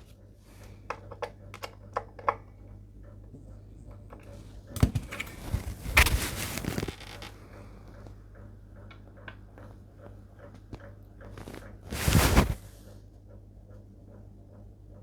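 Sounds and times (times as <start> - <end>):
faint steady hum: 0.0 - 15.0
handling rustle: 4.9 - 7.4, 11.3 - 12.7.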